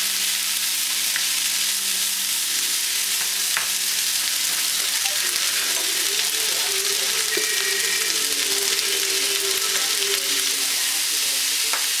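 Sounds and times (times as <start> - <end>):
rice sizzling in a frying pan: 0.0 - 12.0.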